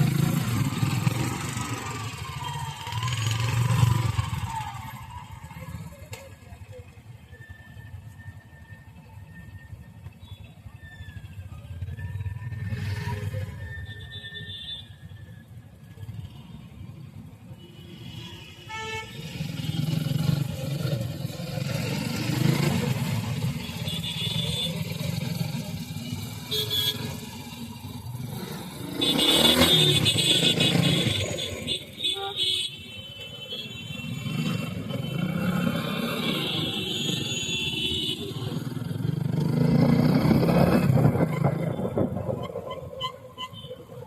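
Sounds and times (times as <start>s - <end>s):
vehicle horns honking: 17.6s - 20.0s, 23.4s - 25.1s, 26.2s - 27.4s, 28.8s - 38.6s.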